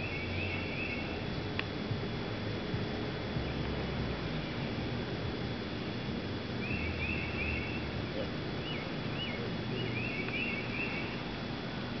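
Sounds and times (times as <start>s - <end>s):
bird chirping and singing: 0.0s - 1.1s, 6.6s - 7.9s, 8.6s - 11.2s
outdoor hiss: 0.0s - 12.0s.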